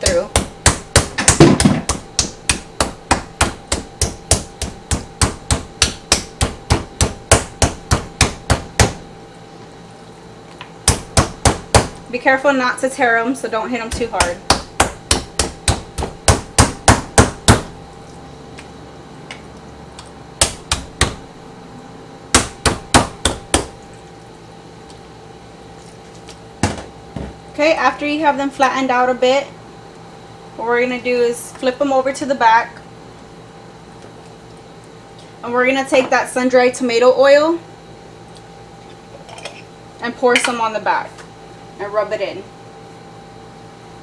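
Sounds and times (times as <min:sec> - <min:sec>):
meat cleaver striking chicken: 0:00.0 - 0:09.1, 0:10.8 - 0:12.0, 0:13.9 - 0:17.8, 0:20.4 - 0:21.3, 0:22.3 - 0:23.8.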